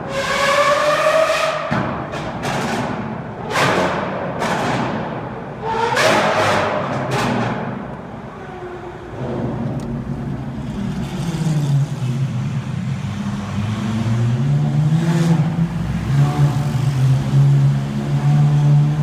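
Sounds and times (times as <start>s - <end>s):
sports car engine revving: 9.8s - 19.0s.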